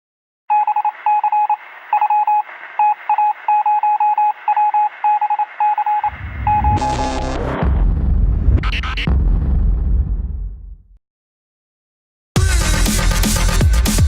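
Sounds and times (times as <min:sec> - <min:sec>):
rapid electronic beeps: 0:00.5 - 0:07.8.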